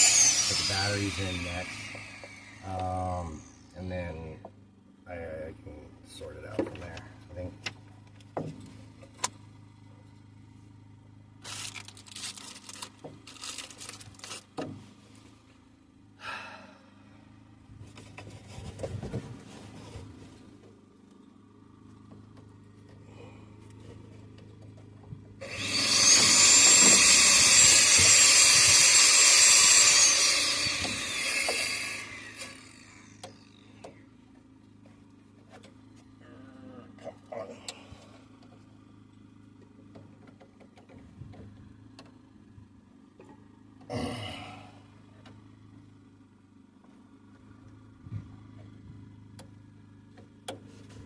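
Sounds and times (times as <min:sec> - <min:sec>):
power drill whining: 0:00.0 - 0:03.8, 0:25.4 - 0:34.0
rustling: 0:11.4 - 0:15.5, 0:17.8 - 0:20.8.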